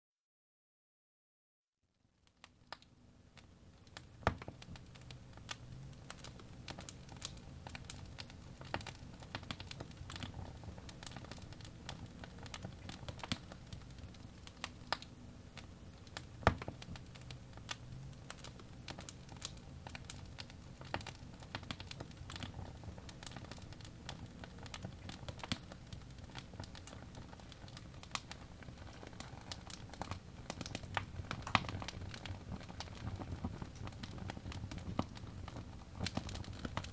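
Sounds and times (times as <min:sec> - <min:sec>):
wood fire crackling and popping: 0:02.2 - 0:36.9
loud fire pops: 0:16.0 - 0:36.9.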